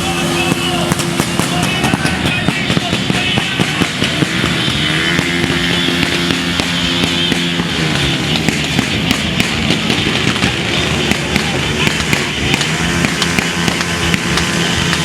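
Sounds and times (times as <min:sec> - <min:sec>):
motorcycle engine running: 0:00.0 - 0:15.0
sharp cracks and pops: 0:05.2 - 0:15.0.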